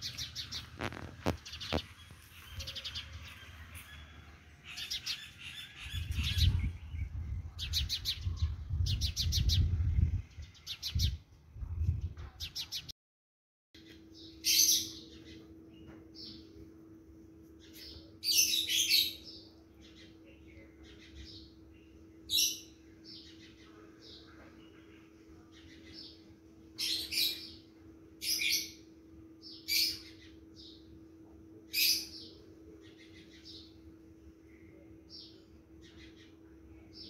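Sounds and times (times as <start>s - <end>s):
bird chirping: 0.0s - 11.2s, 12.4s - 12.9s
steady low hum: 0.0s - 12.8s, 13.8s - 37.0s.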